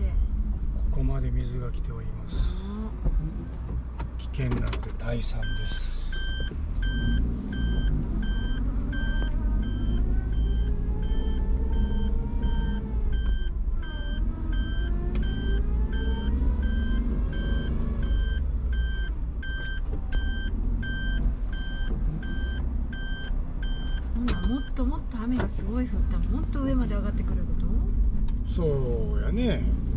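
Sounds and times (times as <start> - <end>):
car engine low rumble: 0.0 - 29.9
reversing warning beeping: 5.3 - 27.1.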